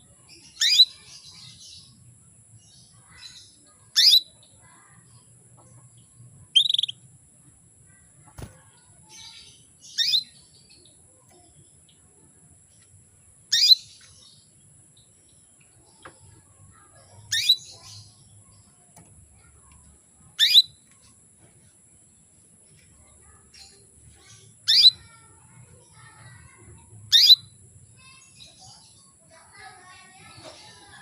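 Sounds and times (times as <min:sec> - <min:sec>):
canary chirping calls: 0:00.0 - 0:02.0, 0:02.8 - 0:07.1, 0:08.8 - 0:12.3, 0:13.4 - 0:15.1, 0:15.8 - 0:20.8, 0:23.0 - 0:31.0.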